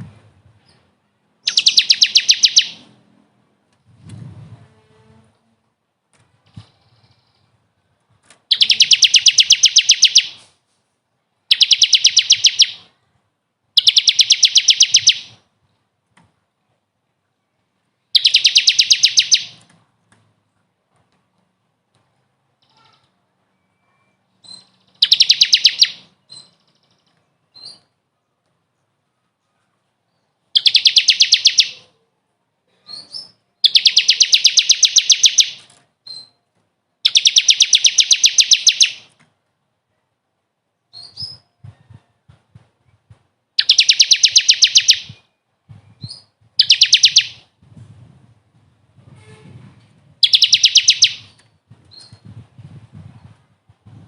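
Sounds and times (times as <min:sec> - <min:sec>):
songbird fast trill: 0:01.4 - 0:02.9, 0:08.5 - 0:10.4, 0:11.5 - 0:12.9, 0:13.8 - 0:15.4, 0:18.2 - 0:19.6, 0:24.4 - 0:27.9, 0:30.6 - 0:31.9, 0:32.9 - 0:36.4, 0:37.0 - 0:39.1, 0:43.6 - 0:45.3, 0:46.0 - 0:47.5, 0:50.2 - 0:52.2.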